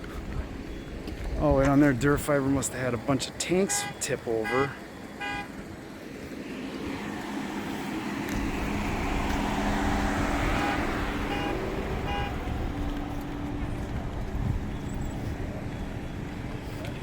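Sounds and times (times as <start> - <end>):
car driving past: 6.4 - 17.0
short electronic beeps: 14.4 - 17.0.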